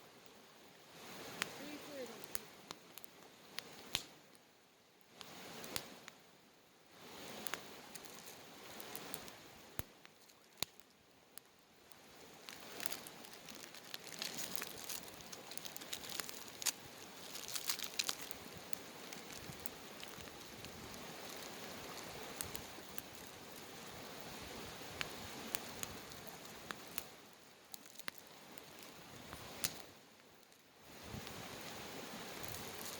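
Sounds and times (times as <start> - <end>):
campfire crackles and pops: 0.0 - 32.9
campfire hissing: 0.0 - 32.9.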